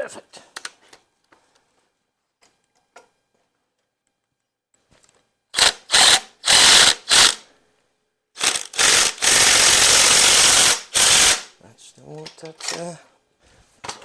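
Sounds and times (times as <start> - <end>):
power wrench rattling: 5.6 - 7.4, 8.4 - 11.5.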